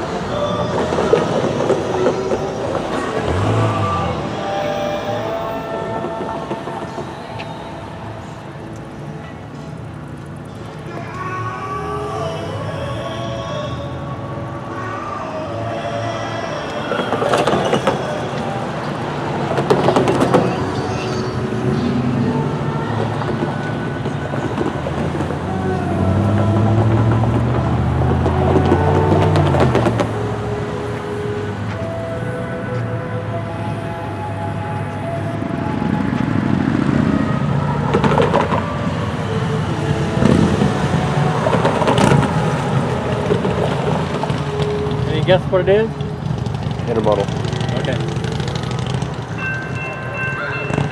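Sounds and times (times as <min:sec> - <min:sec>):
wheel clatter on rails: 0:00.0 - 0:11.2, 0:16.5 - 0:30.4, 0:37.6 - 0:50.9
train clanking and rattling: 0:00.0 - 0:11.3, 0:16.2 - 0:32.3, 0:37.8 - 0:50.9
diesel locomotive hum: 0:00.0 - 0:50.9
freight train rumbling past: 0:00.0 - 0:50.9.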